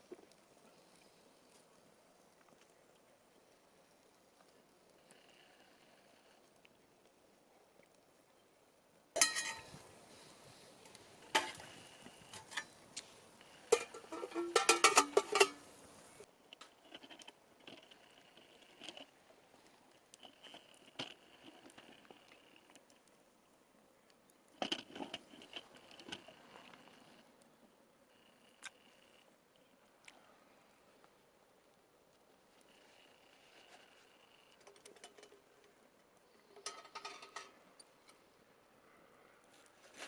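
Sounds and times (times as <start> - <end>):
metal mess tin clanking: 9.2 - 9.8, 11.3 - 11.7, 12.3 - 12.8, 13.7 - 15.7, 36.6 - 37.6.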